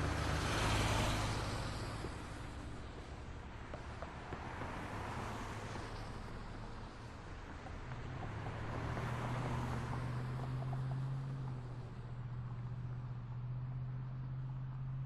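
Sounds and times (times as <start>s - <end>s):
heavy vehicle engine hum: 0.0s - 3.7s
passing cars: 0.0s - 15.0s.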